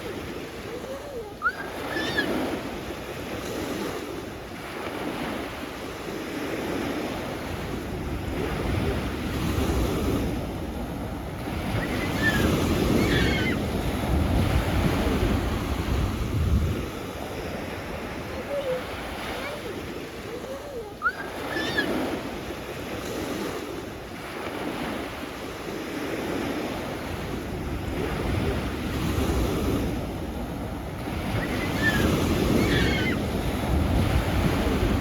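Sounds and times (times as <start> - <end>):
sea waves breaking on shore: 0.0 - 35.0
wind buffeting microphone: 7.6 - 21.8, 27.2 - 35.0.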